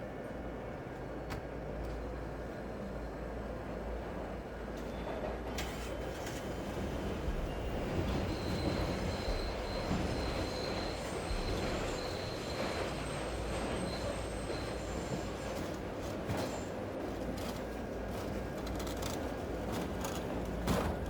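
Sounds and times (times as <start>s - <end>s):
train rumbling past: 0.0s - 18.7s
city noise: 0.0s - 21.0s
high wheel squeal: 8.2s - 15.6s.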